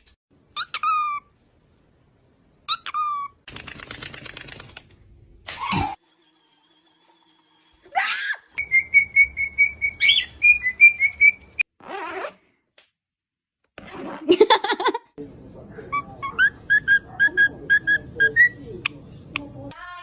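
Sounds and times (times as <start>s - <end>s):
parrot squawk: 0.5s - 1.3s, 2.7s - 3.4s, 7.9s - 11.0s
parrot whistling high pips: 8.0s - 11.6s.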